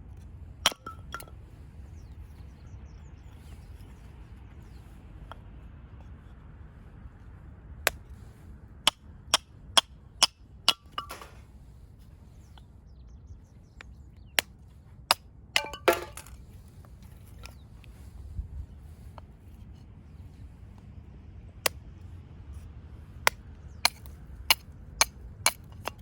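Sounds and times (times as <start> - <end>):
blade knocking into wood: 15.6 - 16.4.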